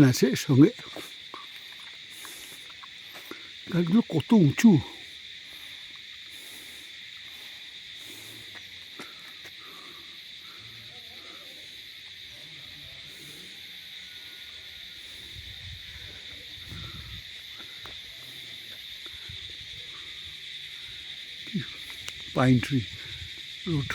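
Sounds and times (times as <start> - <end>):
crickets chirping: 0.0 - 23.9.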